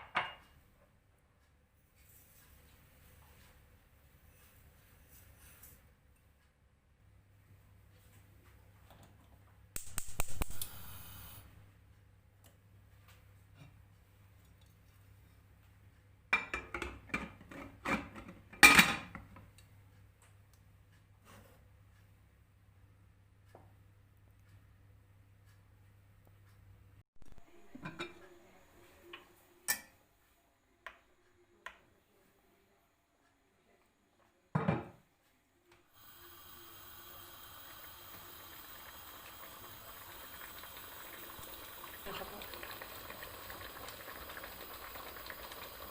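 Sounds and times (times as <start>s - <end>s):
pot sizzling on stove: 9.8s - 11.6s, 36.0s - 45.9s
dishes and utensils clattering: 16.4s - 19.4s.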